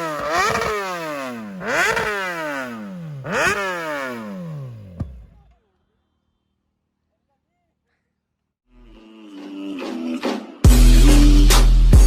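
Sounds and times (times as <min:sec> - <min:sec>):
motorcycle engine revving: 0:00.0 - 0:05.6.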